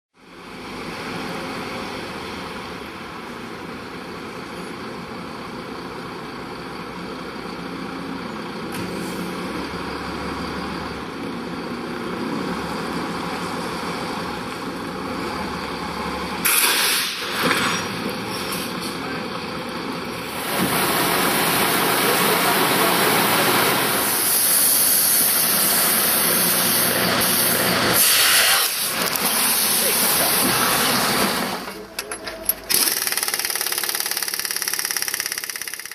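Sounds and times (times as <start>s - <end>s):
truck engine labouring: 0.2s - 32.9s
loud hissing bursts: 16.4s - 17.4s, 20.2s - 31.6s.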